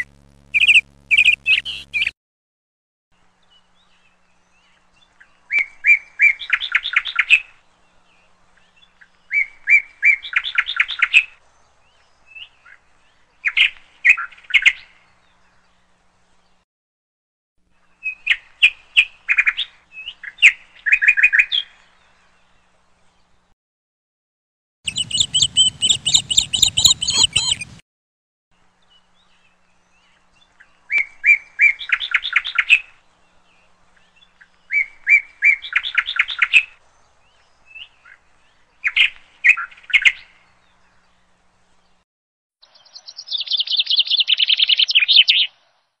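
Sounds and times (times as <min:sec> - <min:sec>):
songbird chirps and trills: 0:00.0 - 0:02.1, 0:24.9 - 0:27.8, 0:42.6 - 0:45.6.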